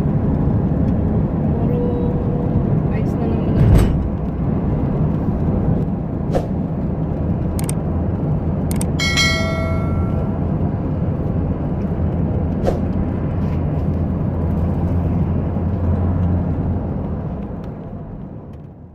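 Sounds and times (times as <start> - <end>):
car interior rumble: 0.0 - 18.9
sharp clicks: 7.5 - 7.8, 8.7 - 9.0
brief pitched tone: 9.0 - 10.4.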